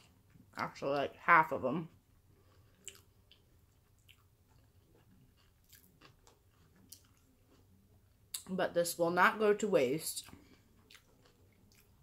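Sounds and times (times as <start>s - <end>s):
faint chewing: 1.8s - 8.5s, 10.2s - 12.0s.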